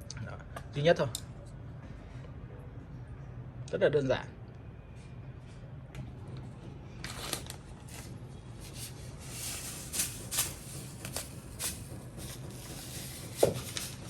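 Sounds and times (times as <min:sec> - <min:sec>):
steady low hum: 0:00.0 - 0:14.0
rustling of food being handled: 0:07.0 - 0:14.0.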